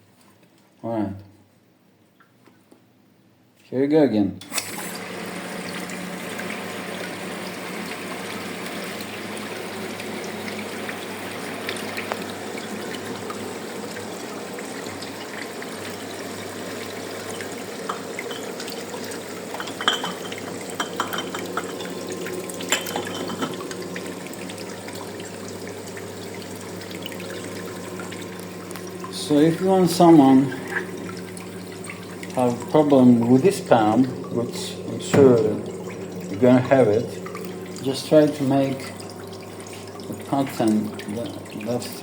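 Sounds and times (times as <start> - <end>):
dishwasher pump hum: 4.4 - 42.0.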